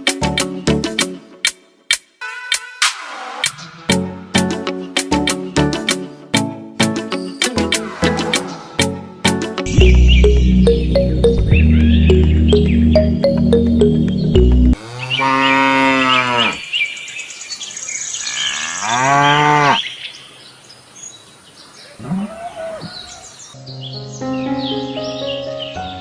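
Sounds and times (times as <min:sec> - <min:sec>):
background music: 0:00.0 - 0:14.8, 0:23.6 - 0:26.0
cow mooing: 0:07.6 - 0:09.0, 0:14.8 - 0:16.6, 0:18.4 - 0:19.9, 0:22.0 - 0:23.0.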